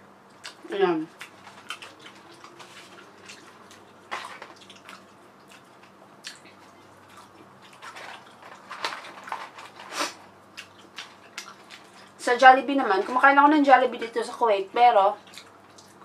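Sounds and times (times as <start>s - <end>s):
chewing with wet mouth clicks: 0.3s - 8.4s, 10.5s - 12.2s, 15.2s - 16.0s.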